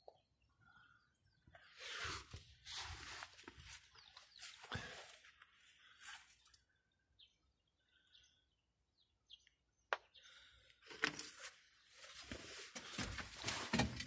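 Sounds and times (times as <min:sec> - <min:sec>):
faint bird chirps: 0:00.0 - 0:10.7.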